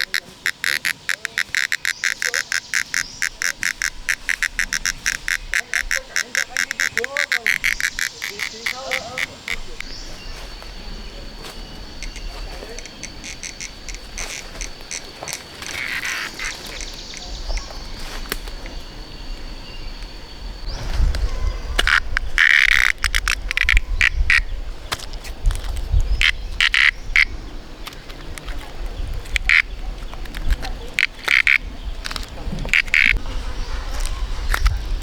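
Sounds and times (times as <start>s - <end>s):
ducks quacking: 0.0s - 19.0s, 26.2s - 28.6s, 29.2s - 35.0s.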